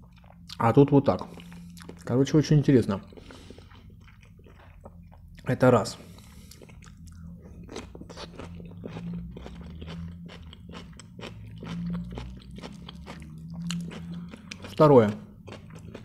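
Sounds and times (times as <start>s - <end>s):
crisp crunching of pickle: 6.5s - 16.0s.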